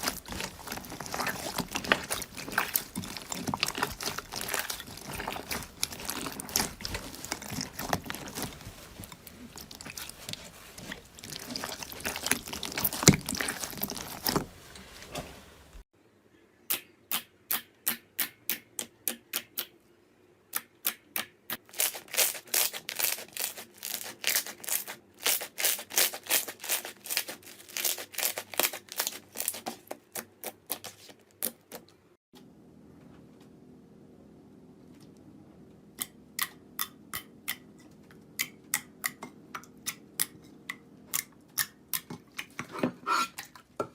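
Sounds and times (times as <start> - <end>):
slime crackling: 0.0 - 14.5, 21.6 - 31.8.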